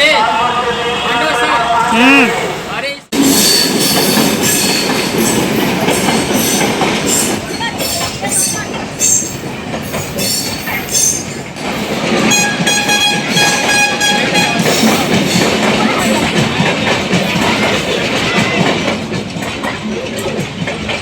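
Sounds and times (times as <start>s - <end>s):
train rattling on track: 0.0s - 21.0s
train wheels squealing: 3.2s - 11.5s.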